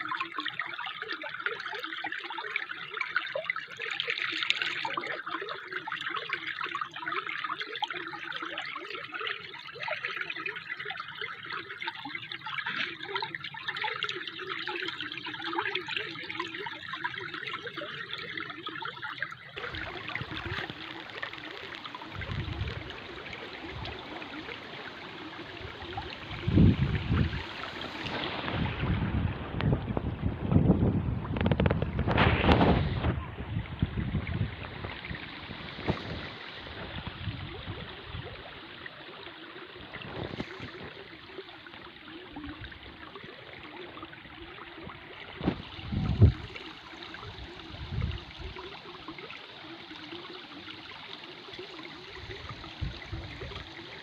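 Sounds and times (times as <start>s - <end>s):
water trickling like a stream: 0.0s - 54.0s
wind gusts on microphone: 22.1s - 24.7s, 25.5s - 38.5s, 45.3s - 46.6s, 47.2s - 48.6s, 52.2s - 53.7s.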